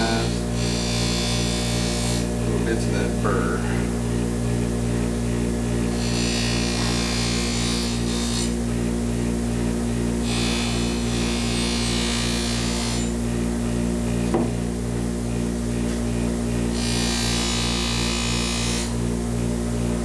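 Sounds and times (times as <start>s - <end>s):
short knock: 14.3s - 14.6s.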